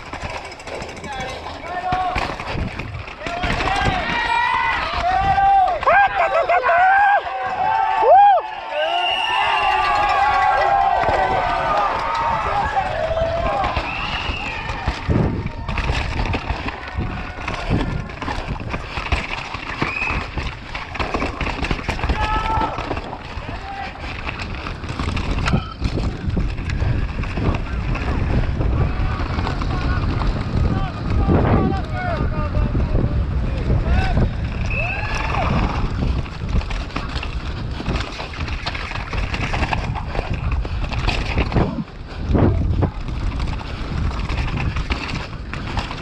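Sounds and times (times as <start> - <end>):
bike chain and frame clattering: 0.0 - 8.1, 8.7 - 46.0
bike tyres rumbling on dirt: 0.0 - 46.0
wind buffeting microphone: 0.9 - 6.2, 7.0 - 46.0.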